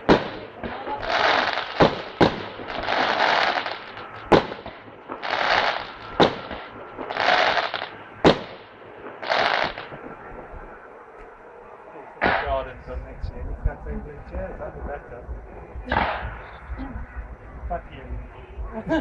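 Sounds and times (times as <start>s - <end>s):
fireworks bangs: 0.0s - 10.8s, 12.2s - 12.8s, 15.8s - 16.6s
hissing crackle of fireworks: 0.0s - 10.8s.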